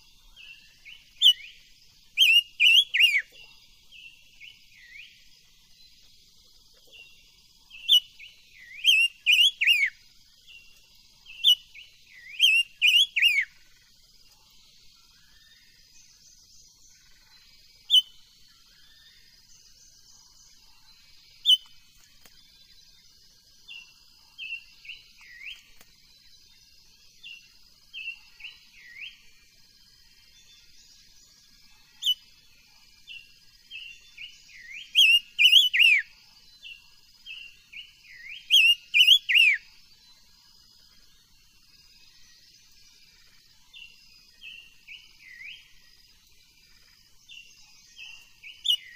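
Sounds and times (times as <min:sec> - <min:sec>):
faint high hiss: 0:00.0 - 0:48.9
songbird whistling: 0:00.7 - 0:03.4, 0:07.7 - 0:10.0, 0:11.3 - 0:13.6, 0:21.4 - 0:21.8, 0:33.8 - 0:36.1, 0:37.3 - 0:39.7.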